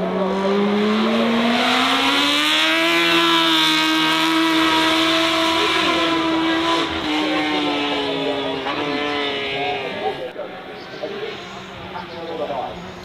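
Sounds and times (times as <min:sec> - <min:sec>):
racing car engine accelerating: 0:00.0 - 0:10.2.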